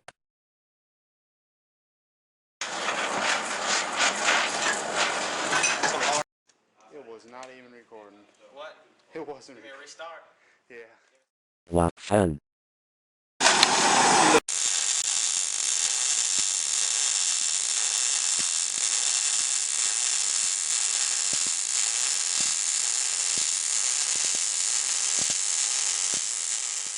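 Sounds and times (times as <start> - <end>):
welding hissing sizzle: 13.4 - 26.9.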